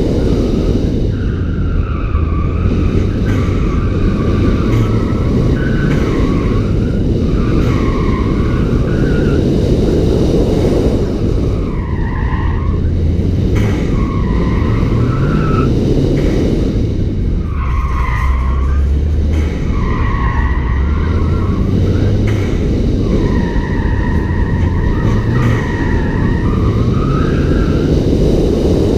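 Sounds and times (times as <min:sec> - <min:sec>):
car engine pulling: 0:00.0 - 0:28.9
tyres squealing: 0:17.4 - 0:27.9.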